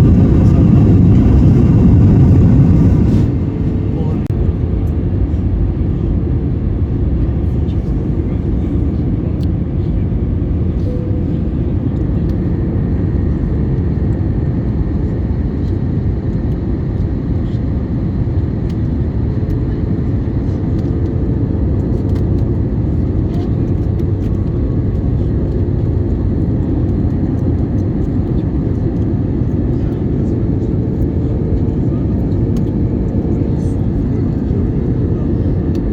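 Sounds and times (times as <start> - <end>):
rushing air: 0.0 - 4.3
airliner engines rumbling: 0.0 - 35.9.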